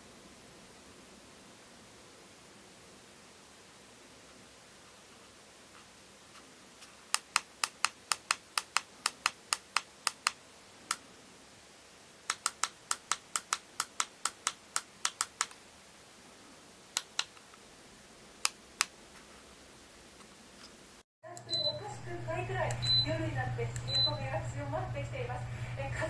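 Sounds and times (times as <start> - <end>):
sharp clicks: 6.8 - 11.0, 12.3 - 15.6, 17.0 - 17.6, 18.4 - 19.0.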